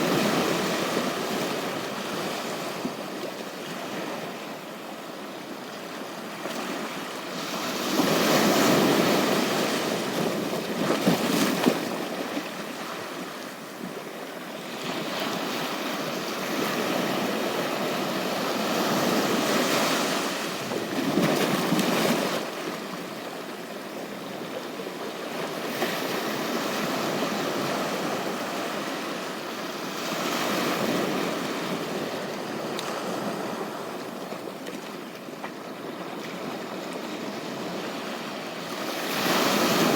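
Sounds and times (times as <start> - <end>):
waves breaking on shore: 14.5 - 23.0, 25.2 - 39.9.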